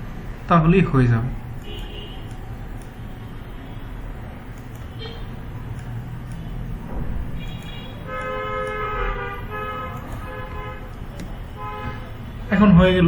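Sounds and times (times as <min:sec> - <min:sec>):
low traffic rumble: 0:00.0 - 0:13.0
vehicle horns honking: 0:01.6 - 0:02.4, 0:04.9 - 0:05.4, 0:07.3 - 0:12.6.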